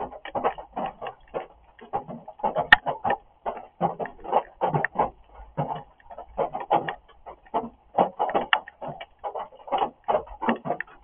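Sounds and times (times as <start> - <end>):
rain drops on a hard surface: 0.0 - 11.0.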